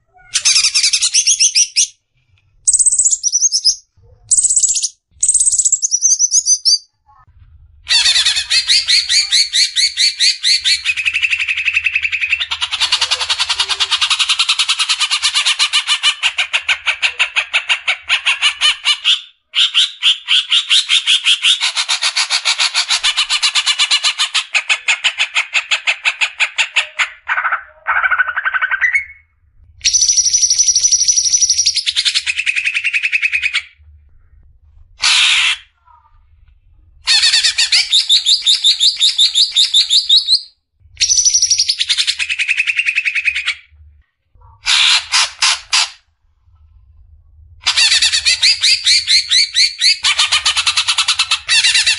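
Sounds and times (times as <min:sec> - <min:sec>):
bird singing rapid repeated notes: 0:00.4 - 0:02.0, 0:02.7 - 0:06.9, 0:27.9 - 0:33.6, 0:37.3 - 0:43.5.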